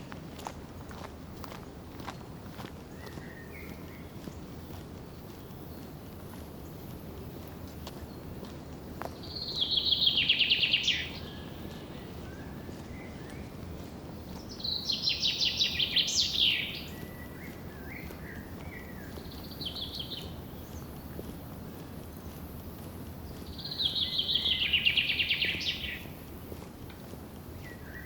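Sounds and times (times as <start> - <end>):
songbird singing: 1.6 - 28.0
soft bird calls: 9.2 - 21.3, 23.2 - 26.1.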